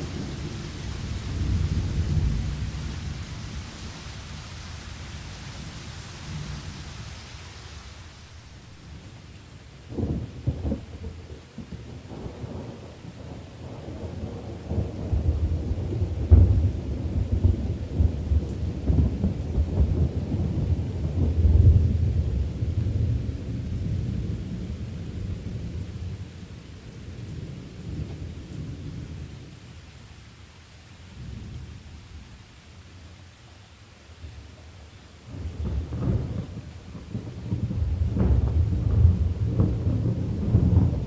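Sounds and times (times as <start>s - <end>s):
steady rain: 0.0s - 41.0s
thunder rolling: 35.3s - 41.0s.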